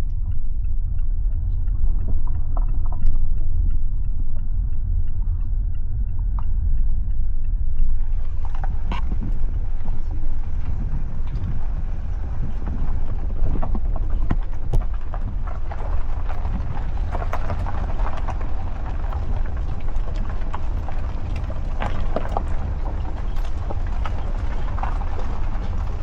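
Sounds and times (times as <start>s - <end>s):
vehicle rumble on dirt road: 0.0s - 26.0s
knocks and rattles over bumps: 8.2s - 26.0s.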